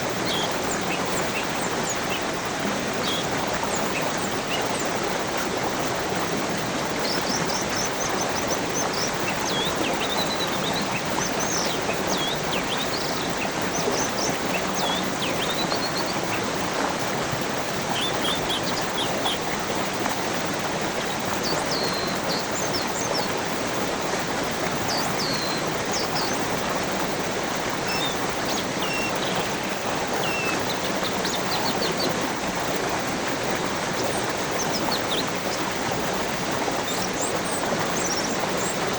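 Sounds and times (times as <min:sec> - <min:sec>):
stream running: 0:00.0 - 0:38.9
small birds chirping and whistling: 0:27.9 - 0:29.5.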